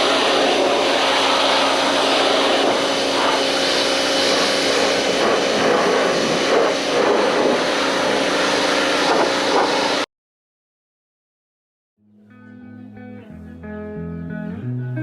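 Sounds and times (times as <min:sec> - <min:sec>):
pressure washer motor hum: 0:00.0 - 0:10.1
water jet spraying hiss: 0:00.0 - 0:10.1.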